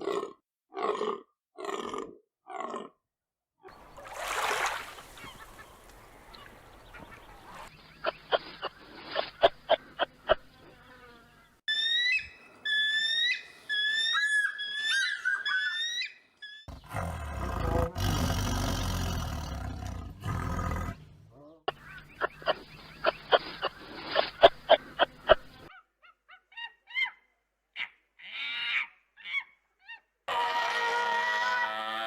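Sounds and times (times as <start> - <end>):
rough growling roar: 16.7 - 21.1.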